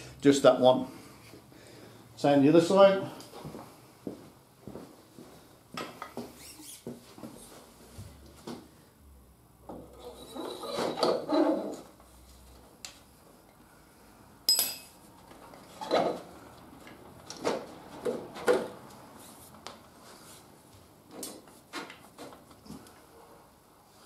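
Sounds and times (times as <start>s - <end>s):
metallic clinks and knocks: 14.5s - 15.0s.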